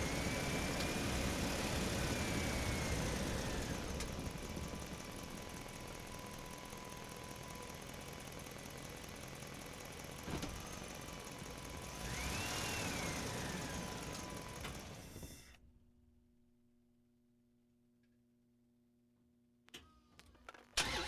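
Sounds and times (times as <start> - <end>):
engine running steadily: 0.0 - 15.6.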